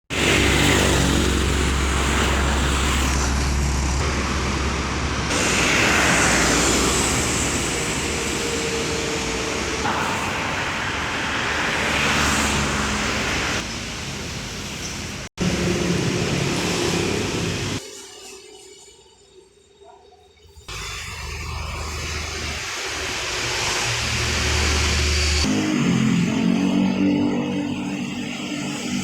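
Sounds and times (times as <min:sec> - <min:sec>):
continuous rushing noise: 0:00.1 - 0:17.8, 0:20.7 - 0:29.0
traffic engine hum: 0:00.1 - 0:17.8.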